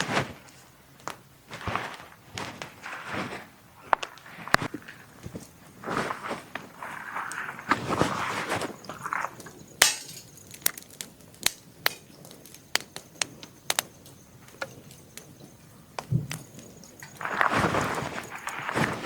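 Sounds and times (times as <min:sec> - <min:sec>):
rustle: 0:00.0 - 0:19.0
wood snapping: 0:09.8 - 0:15.3.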